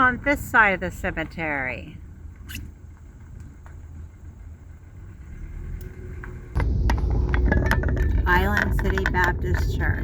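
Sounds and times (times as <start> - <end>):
loud low car rumble: 0.0 - 10.0
low rumble: 1.9 - 10.0.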